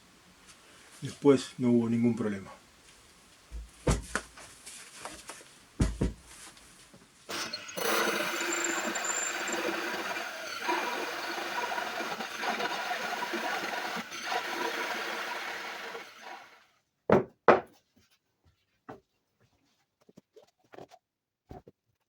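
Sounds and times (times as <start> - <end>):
power tool abrasive rubbing: 7.3 - 16.6.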